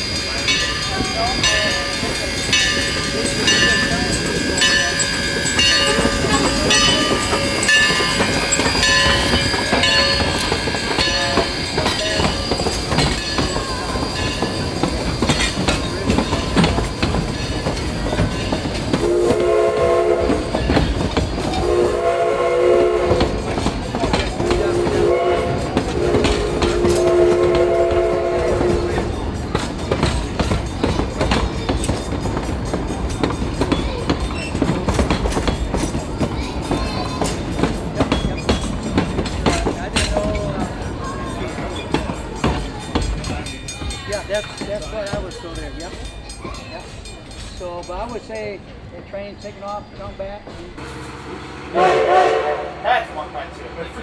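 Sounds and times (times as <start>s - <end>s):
train wheels clicking over rail joints: 0.0s - 54.0s
steam whistle blasts: 19.0s - 20.7s, 21.6s - 23.5s, 24.4s - 29.1s, 50.8s - 52.9s.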